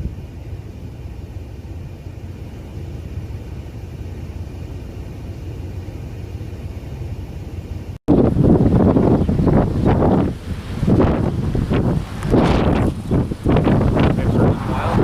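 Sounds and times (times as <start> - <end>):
wind buffeting microphone: 8.1 - 15.0.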